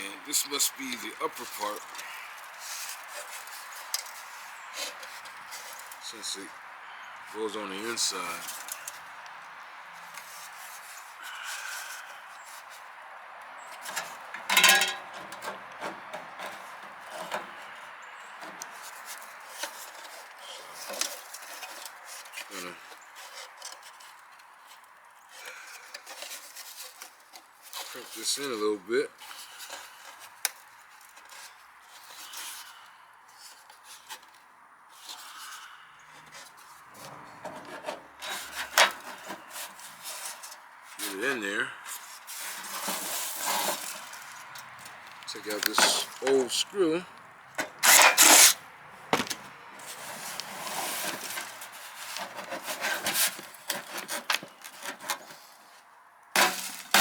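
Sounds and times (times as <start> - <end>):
sheet metal scraping and knocking: 13.9 - 17.6, 37.0 - 39.5
sheet metal scraping: 13.9 - 17.7, 42.4 - 46.6, 47.6 - 48.6.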